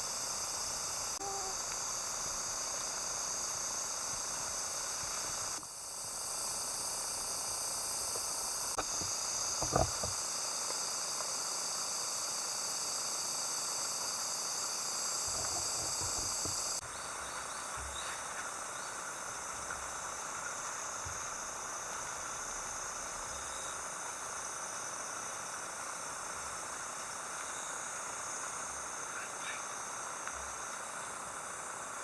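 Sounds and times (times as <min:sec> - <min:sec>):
insects chirring: 0:00.0 - 0:32.0
faint low knocks: 0:08.8 - 0:10.2.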